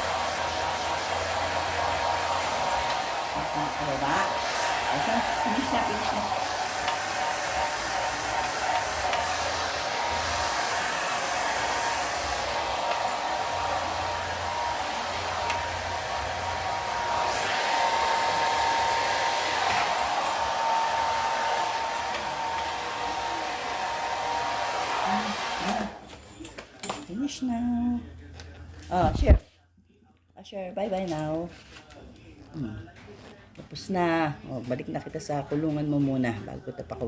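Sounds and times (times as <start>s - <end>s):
hair dryer blowing: 0.0s - 26.1s.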